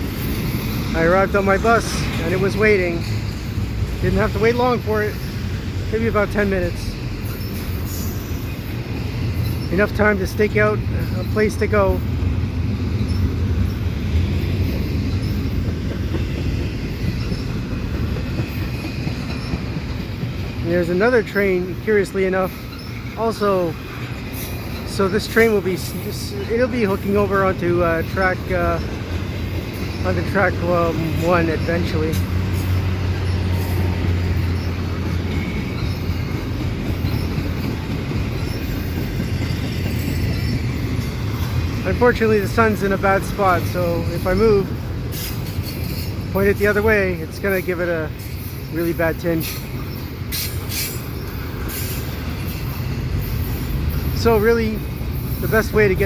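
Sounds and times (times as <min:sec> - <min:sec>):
high wheel squeal: 0:00.0 - 0:56.0
train wheels rumbling on rail: 0:00.0 - 0:56.0
faint wheel squeal: 0:43.6 - 0:55.6.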